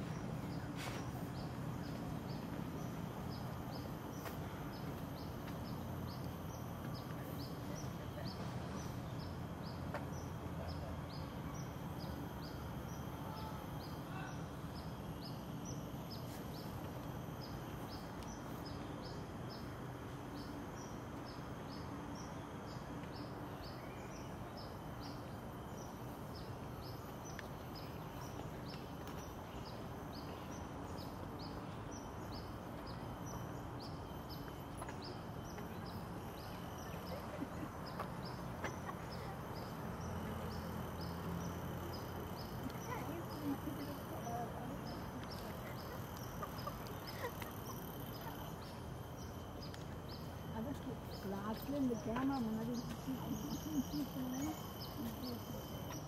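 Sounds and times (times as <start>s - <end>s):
low background noise: 0.0s - 56.0s
bird chirping: 20.3s - 56.0s.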